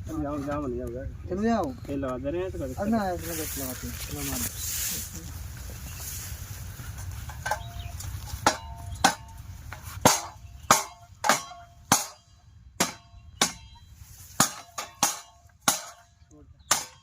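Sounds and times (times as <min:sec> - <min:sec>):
hammer striking metal: 0:07.4 - 0:17.0.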